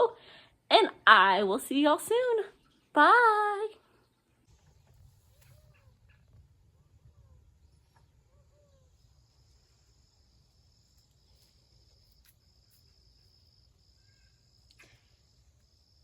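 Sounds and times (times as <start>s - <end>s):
low outdoor rumble: 4.4s - 13.3s
high-pitched insect trill: 8.4s - 16.0s.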